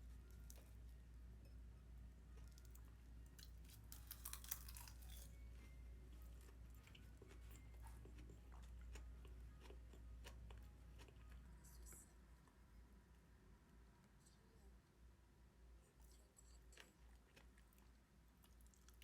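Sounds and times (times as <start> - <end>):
chewing and crunching food: 2.3 - 12.0, 16.0 - 19.0.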